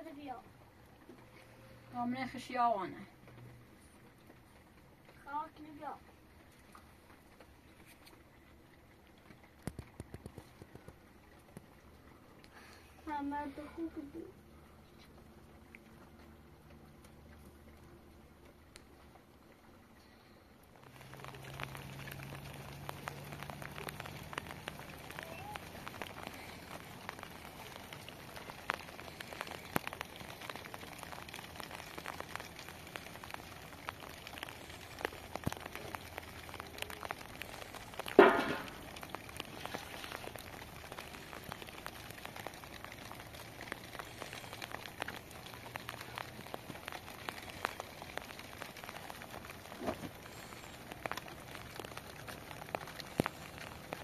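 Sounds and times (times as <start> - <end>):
rain falling: 0.0 - 54.0
drops ticking on surfaces: 20.8 - 54.0.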